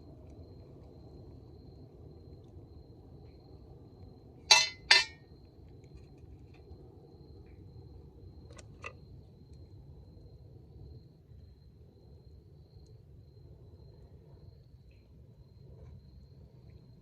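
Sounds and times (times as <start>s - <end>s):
kitchenware clinking: 4.5s - 5.2s.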